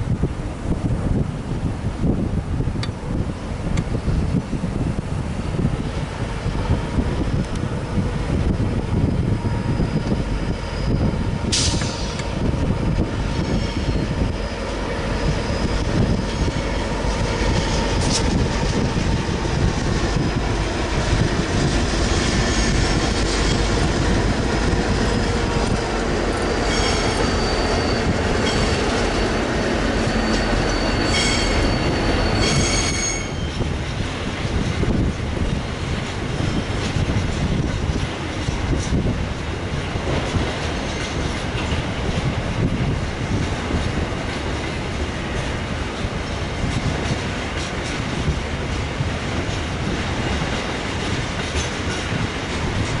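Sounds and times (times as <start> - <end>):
freight train rumbling past: 0.0 - 53.0
high-pitched wheel squeal: 9.3 - 12.3, 13.3 - 18.3, 22.3 - 23.6, 25.9 - 33.7.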